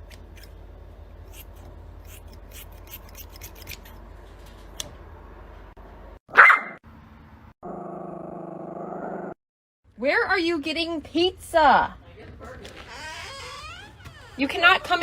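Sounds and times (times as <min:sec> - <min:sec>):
dog barking: 0:06.3 - 0:06.8.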